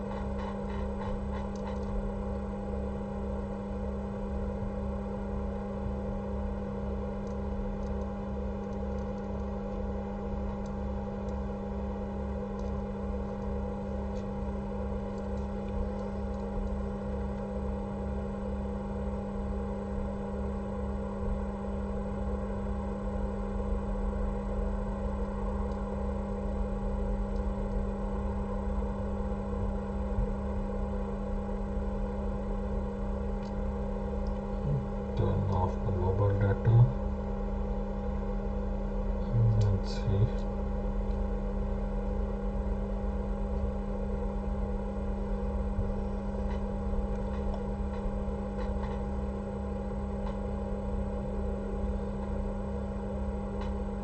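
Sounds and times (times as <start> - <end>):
low pulsing throb: 0.0 - 2.1
electrical hum: 0.0 - 54.0.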